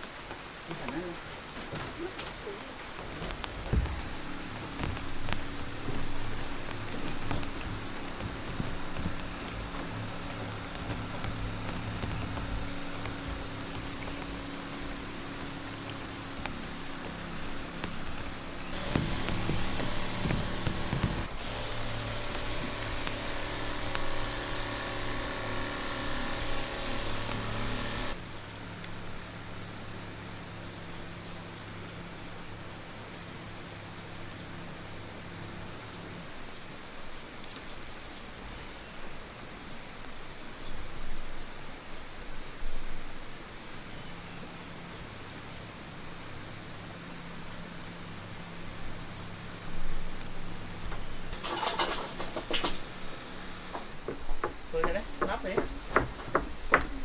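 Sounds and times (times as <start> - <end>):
high insect trill: 0.0 - 57.0
loud steady hiss: 0.0 - 57.0
soft knocks: 50.0 - 57.0.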